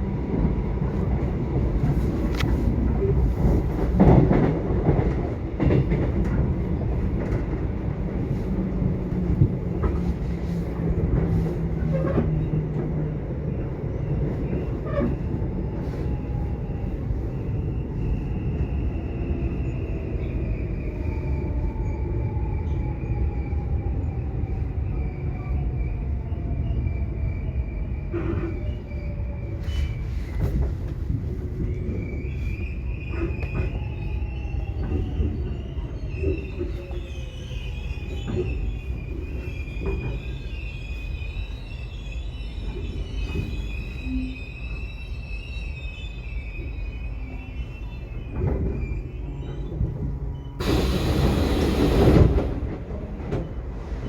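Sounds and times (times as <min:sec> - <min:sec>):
subway train rumble: 0:00.0 - 0:54.0
high squeal: 0:31.2 - 0:52.6.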